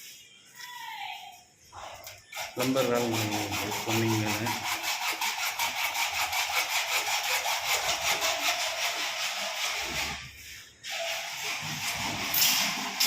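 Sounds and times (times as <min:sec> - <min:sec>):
fast rhythmic rasping: 0:02.3 - 0:10.2.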